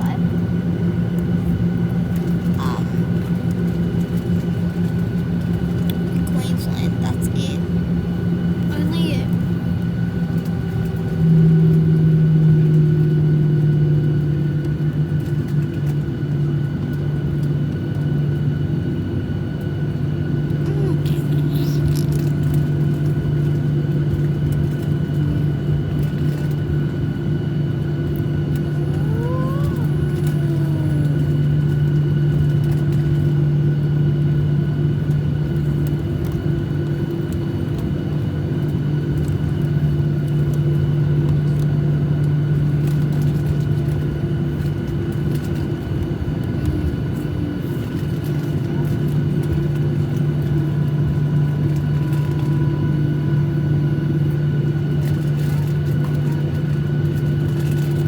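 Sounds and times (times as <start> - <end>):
airliner cabin drone: 0.0 - 58.0
faint whine: 20.4 - 38.0, 39.1 - 56.5.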